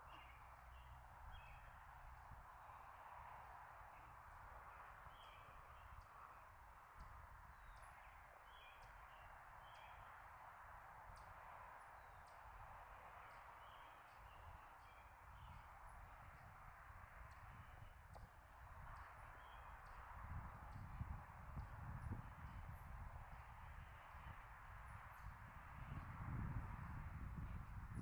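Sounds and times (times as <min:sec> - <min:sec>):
small birds chirping: 0:00.0 - 0:10.4, 0:13.2 - 0:16.4, 0:17.2 - 0:24.4.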